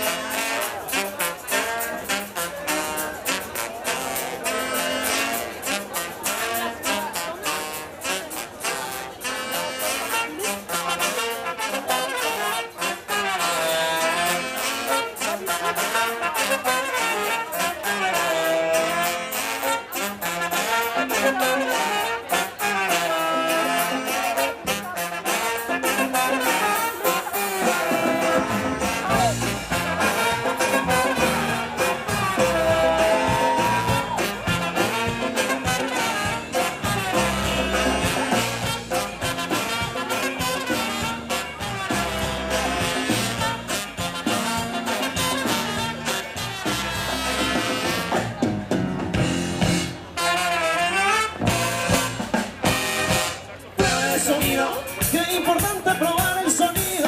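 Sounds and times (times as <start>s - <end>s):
trumpet and trombone: 0.0s - 57.0s
fast drum beat: 23.2s - 50.1s, 51.4s - 57.0s
deep bass line: 27.9s - 50.0s.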